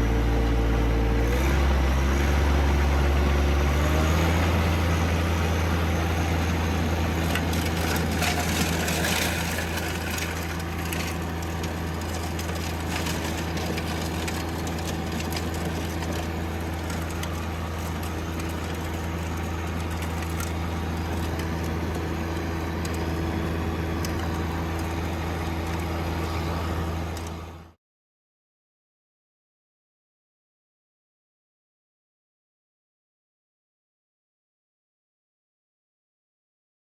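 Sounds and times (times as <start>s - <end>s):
tractor diesel engine running: 0.0s - 27.8s
clicks and rattles: 7.2s - 23.4s.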